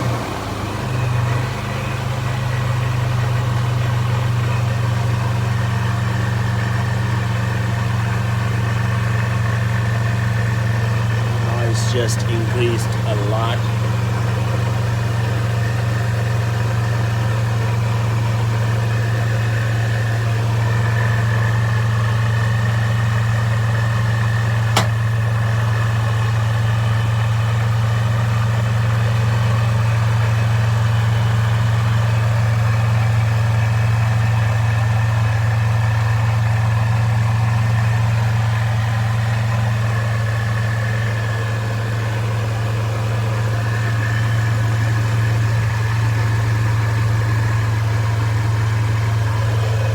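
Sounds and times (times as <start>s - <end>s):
car engine idling: 0.0s - 49.9s
sharp click: 24.7s - 25.0s.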